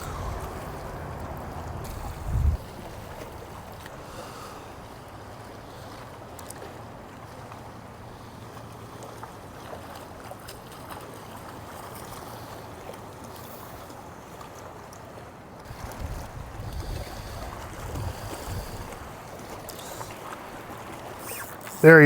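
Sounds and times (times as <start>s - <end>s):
low steady hum: 0.0s - 4.1s
water around a boat: 0.0s - 22.0s
wind: 0.0s - 22.0s.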